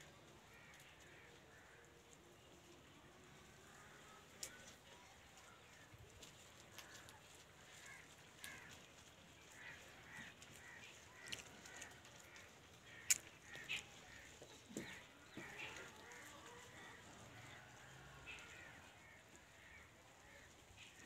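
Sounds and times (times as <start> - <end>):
faint bird calls: 9.5 - 21.0.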